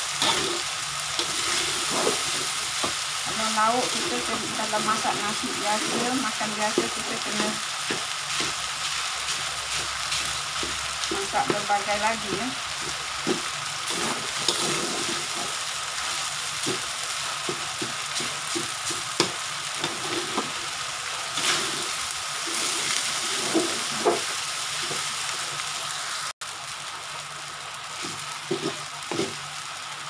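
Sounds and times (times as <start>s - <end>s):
rice sizzling in a wok: 0.0s - 30.0s
metal spatula scraping wok: 0.1s - 8.6s, 9.3s - 15.7s, 19.8s - 20.7s, 21.3s - 25.0s, 28.0s - 29.4s.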